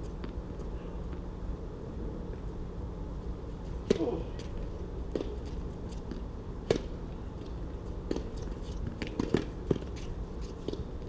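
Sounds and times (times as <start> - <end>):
steady background hum: 0.0 - 11.0
tennis ball hit by rackets: 3.8 - 4.5, 5.1 - 7.0, 8.1 - 10.8
tennis ball bouncing on court: 3.9 - 4.5, 5.1 - 7.0, 8.0 - 10.9.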